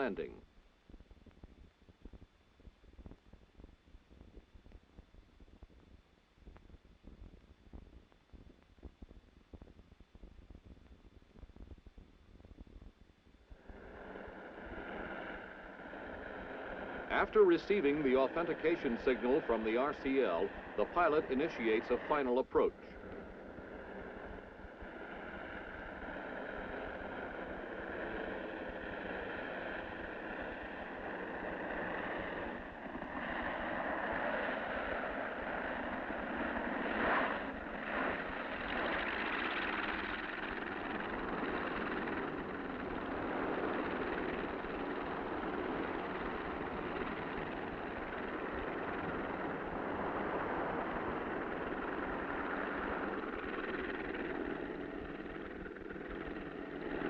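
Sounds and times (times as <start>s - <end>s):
floatplane piston engine: 13.6s - 57.0s.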